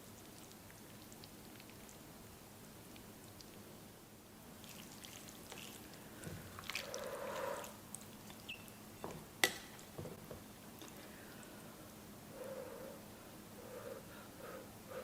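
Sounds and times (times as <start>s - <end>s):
wet chewing sounds: 0.0s - 2.0s, 4.6s - 8.6s.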